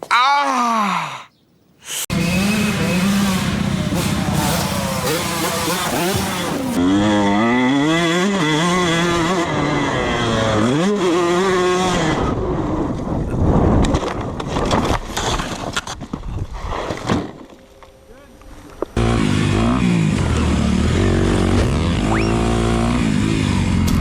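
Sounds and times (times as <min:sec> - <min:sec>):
dirt bike engine revving: 0:02.1 - 0:12.5, 0:19.0 - 0:24.0.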